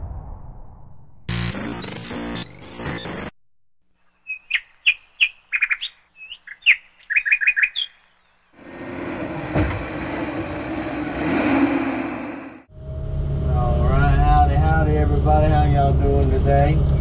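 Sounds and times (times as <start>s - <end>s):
songbird singing: 4.0s - 8.6s
engine running steadily: 8.6s - 17.0s.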